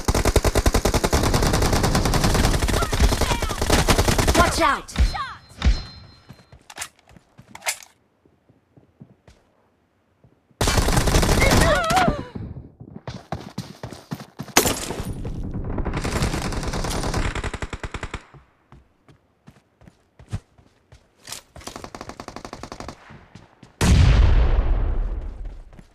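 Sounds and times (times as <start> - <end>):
video game automatic gunfire: 0.0 - 4.6, 10.6 - 11.8, 14.6 - 18.3.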